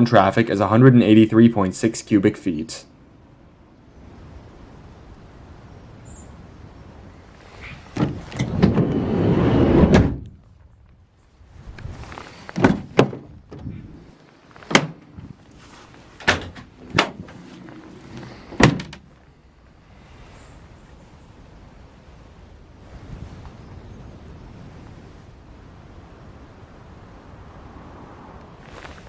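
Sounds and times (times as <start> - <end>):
sliding van door rolling: 7.8 - 10.3, 14.7 - 19.1
van door clunks and latch knocks: 12.6 - 13.7, 16.2 - 17.4, 18.5 - 19.1.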